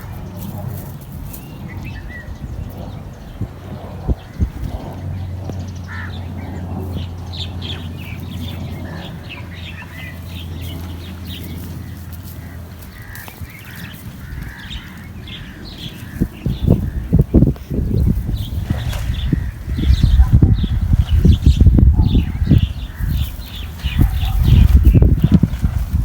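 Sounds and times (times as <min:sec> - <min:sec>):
chicks peeping: 0:04.0 - 0:25.8.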